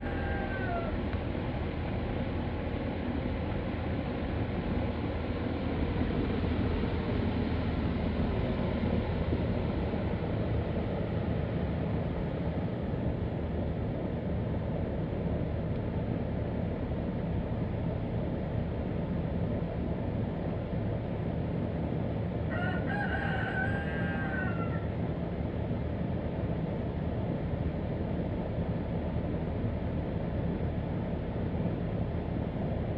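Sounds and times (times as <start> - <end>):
rooster crowing: 0.0 - 1.1, 22.5 - 24.9
outdoor background noise: 0.0 - 32.9.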